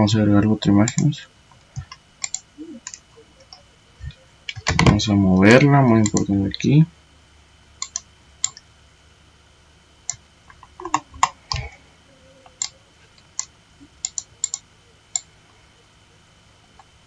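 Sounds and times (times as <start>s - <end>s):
computer mouse clicking: 0.8s - 6.4s, 7.8s - 8.7s, 10.0s - 11.8s, 12.4s - 15.3s.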